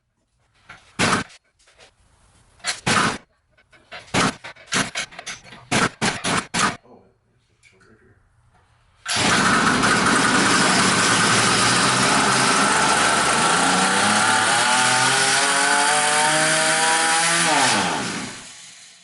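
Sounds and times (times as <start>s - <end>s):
two-stroke engine running: 9.1s - 18.5s.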